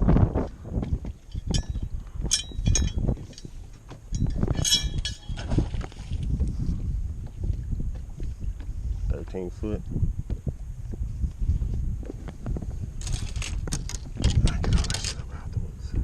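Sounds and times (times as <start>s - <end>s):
wind on microphone: 0.0s - 16.0s
metallic gear clinking: 4.2s - 5.4s.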